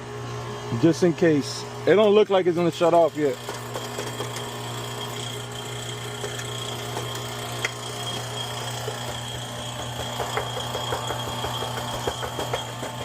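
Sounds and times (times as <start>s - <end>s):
compressor humming: 0.0s - 13.0s.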